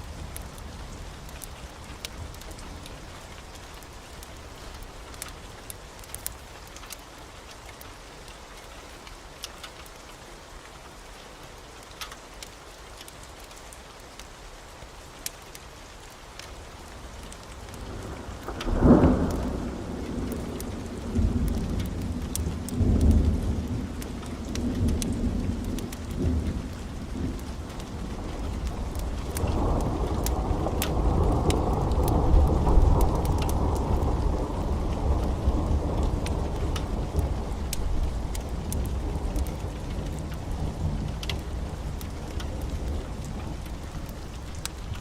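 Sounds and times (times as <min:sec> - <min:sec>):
rain hiss: 0:00.0 - 0:45.0
thunder peal and rumble: 0:17.7 - 0:45.0.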